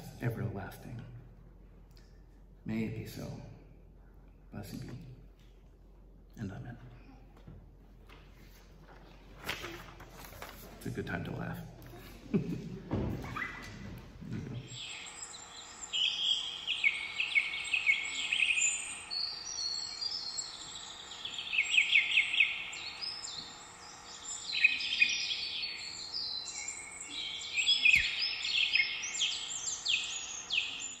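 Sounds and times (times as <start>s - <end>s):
steady background hiss: 0.0s - 31.0s
songbirds singing and calling: 14.6s - 31.0s.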